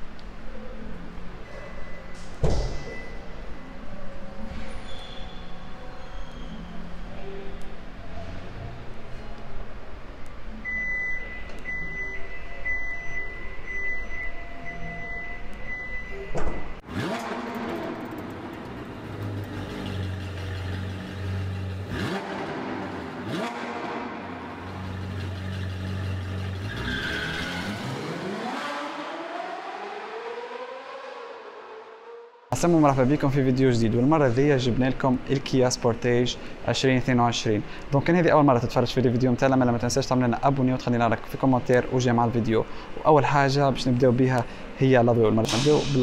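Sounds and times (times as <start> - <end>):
electronic beeping: 10.7 - 16.8
vehicles passing: 16.7 - 34.6
car engine revving: 16.8 - 32.5
loud hit: 45.4 - 46.0.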